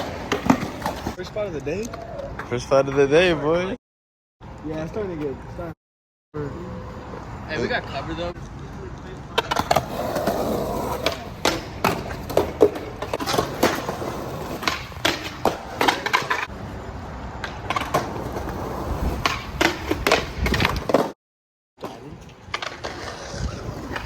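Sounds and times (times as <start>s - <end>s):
skateboard clacking on ground: 0.0s - 3.3s, 8.4s - 16.6s, 17.3s - 21.2s, 21.8s - 24.0s
skateboard rolling: 0.0s - 3.4s, 6.7s - 21.2s, 21.8s - 24.0s.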